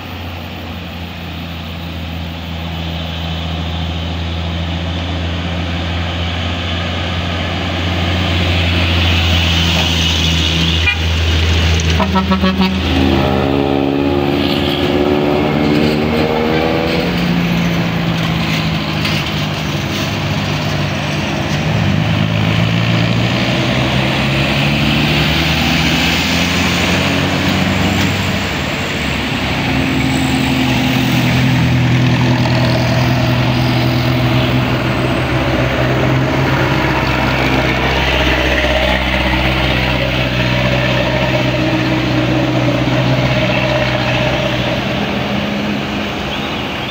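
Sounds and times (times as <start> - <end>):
heavy vehicles driving past: 0.0 - 46.9
vehicle horn: 10.8 - 11.1, 11.9 - 13.7.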